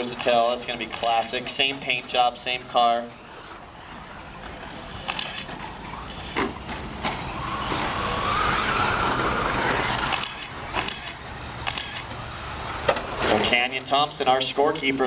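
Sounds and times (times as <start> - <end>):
sharp clicks and knocks: 0.0 - 1.9, 10.0 - 12.2
electric motor whine: 2.8 - 13.5.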